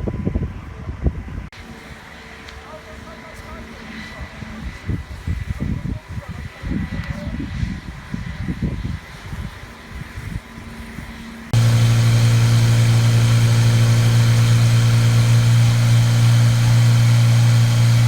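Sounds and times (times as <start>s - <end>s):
engine running steadily: 11.6s - 18.0s.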